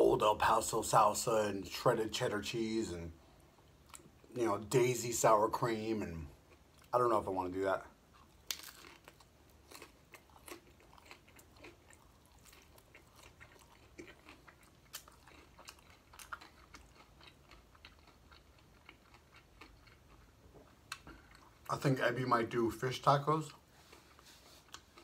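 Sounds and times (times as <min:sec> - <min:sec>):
chewing crunchy food: 0:08.0 - 0:21.8, 0:23.5 - 0:25.0.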